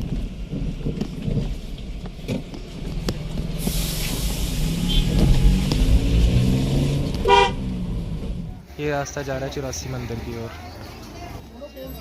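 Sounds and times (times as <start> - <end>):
vehicle engine rumble: 0.0 - 12.0
loud hissing rush: 3.6 - 5.0.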